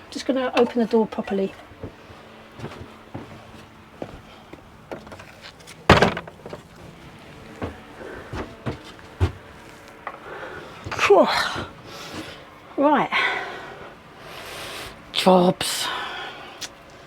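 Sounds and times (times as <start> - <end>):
light knocks and rattles: 0.1 - 10.2
door knock and scrape: 5.9 - 6.5.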